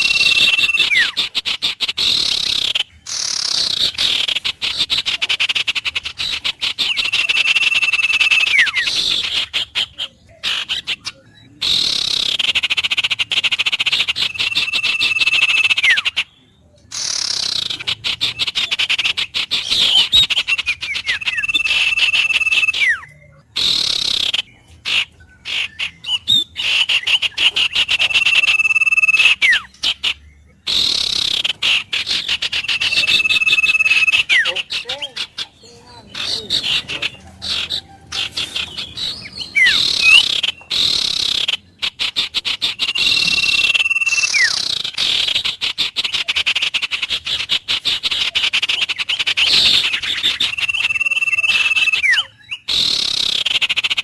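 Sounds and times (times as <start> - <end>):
animal call with whistle-like note: 28.0 - 29.7, 50.4 - 53.2.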